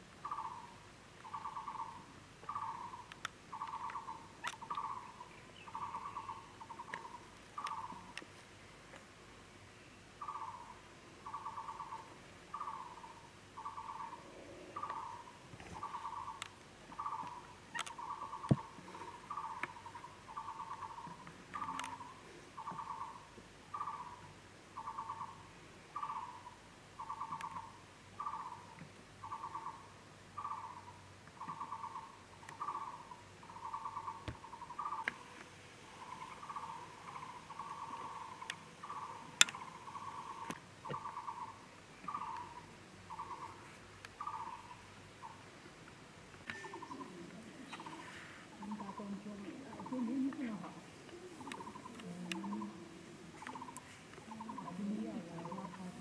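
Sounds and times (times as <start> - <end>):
sharp clicks: 3.0 - 4.9, 17.2 - 18.7, 21.5 - 22.0, 39.4 - 39.8.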